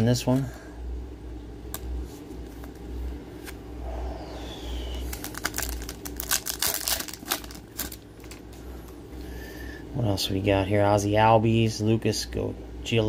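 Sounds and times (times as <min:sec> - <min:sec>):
steady low hum: 0:00.0 - 0:13.0
plastic card sleeves crinkling: 0:04.6 - 0:08.6.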